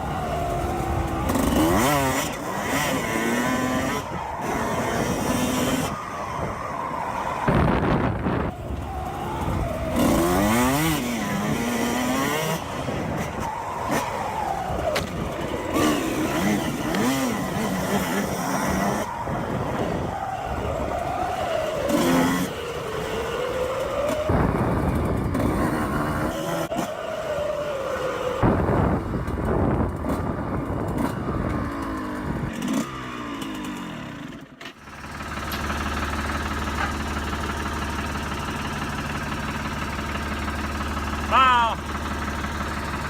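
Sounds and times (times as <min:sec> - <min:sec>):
dirt bike engine revving: 0:00.0 - 0:43.0
wind on microphone: 0:07.4 - 0:10.4, 0:24.3 - 0:26.3, 0:28.4 - 0:32.6.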